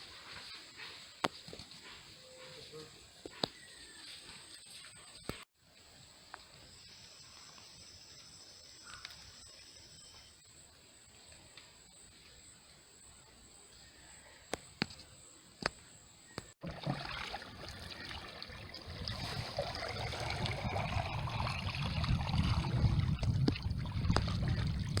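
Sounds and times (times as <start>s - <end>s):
water sloshing and trickling: 16.6s - 25.0s.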